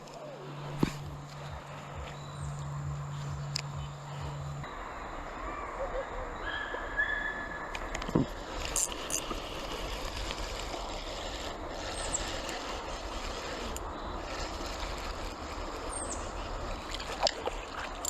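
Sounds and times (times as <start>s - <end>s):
river water flowing over rocks: 8.0s - 18.0s.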